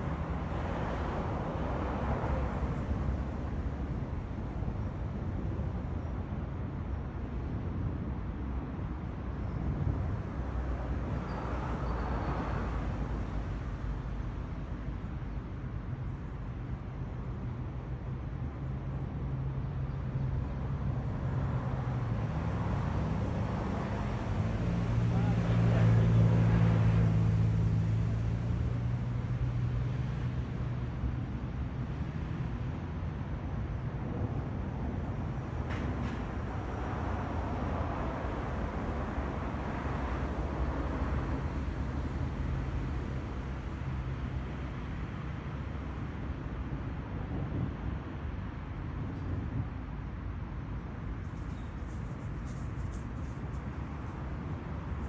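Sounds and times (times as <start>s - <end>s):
street traffic: 0.0s - 55.0s
motor vehicle engine hum: 49.0s - 55.0s.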